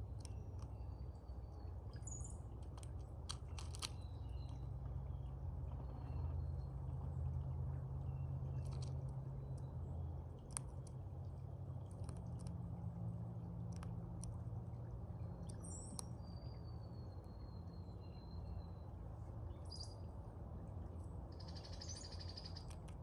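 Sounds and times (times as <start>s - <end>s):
crow pecking and crunching food: 0.0s - 6.2s, 7.2s - 16.1s, 21.9s - 23.0s.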